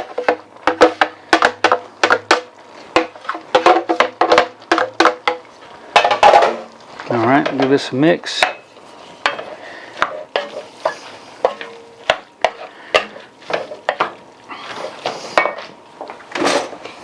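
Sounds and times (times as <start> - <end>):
utensil knocking on pot: 0.0 - 5.4, 11.4 - 13.2
light sizzle: 1.8 - 17.0
stirring scrape: 8.4 - 15.7.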